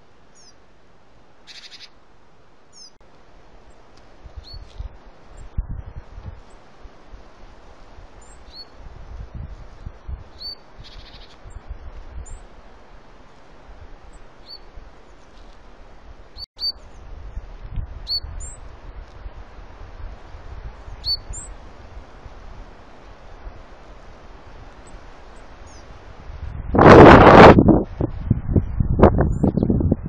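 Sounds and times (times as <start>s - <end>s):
short thin bird chirps: 1.5s - 1.9s, 10.4s - 11.4s, 16.6s - 16.8s, 21.0s - 21.5s
wind rumble on microphone: 3.6s - 30.0s.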